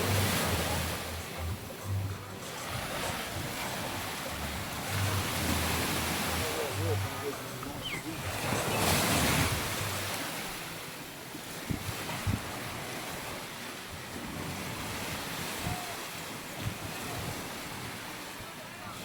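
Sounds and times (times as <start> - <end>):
sea waves breaking on beach: 0.0 - 19.0
wind thumps on microphone: 11.6 - 12.8.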